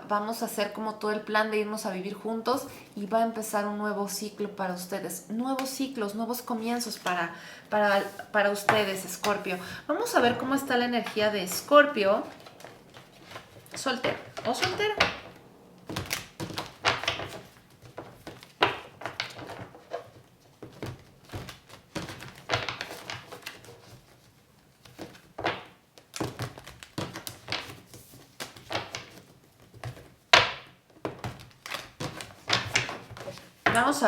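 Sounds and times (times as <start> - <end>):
cards being shuffled: 7.8 - 30.2, 31.0 - 33.8.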